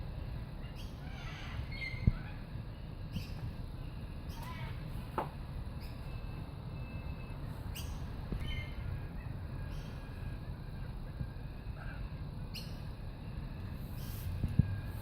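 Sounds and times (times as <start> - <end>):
steady low rumble: 0.0 - 15.0
lorikeet calls: 0.6 - 2.4, 7.7 - 10.1, 11.8 - 12.8.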